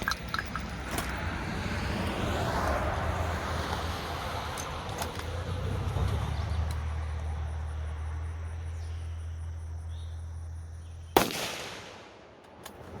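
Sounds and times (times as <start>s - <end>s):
loud gunshot: 11.2s - 12.2s.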